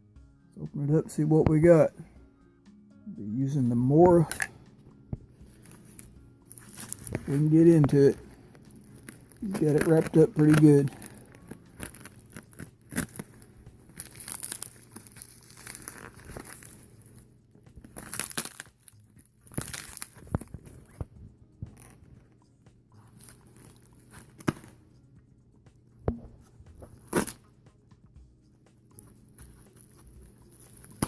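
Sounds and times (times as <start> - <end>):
wrapping tearing and crinkling: 5.5 - 21.1, 26.9 - 27.4, 29.3 - 31.0
knife cutting packaging: 5.6 - 17.0.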